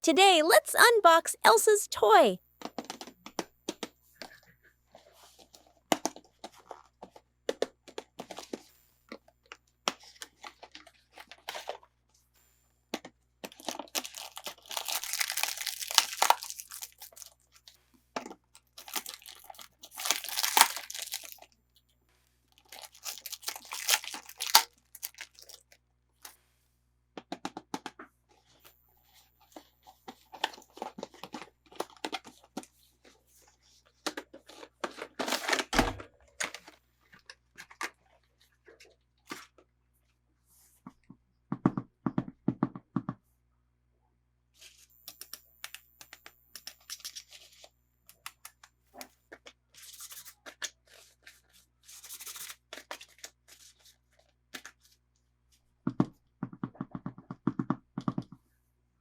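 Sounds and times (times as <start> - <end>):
packaging tearing and crinkling: 13.7 - 17.3, 18.8 - 21.4, 22.6 - 25.7
packaging clicks and taps: 18.8 - 21.4.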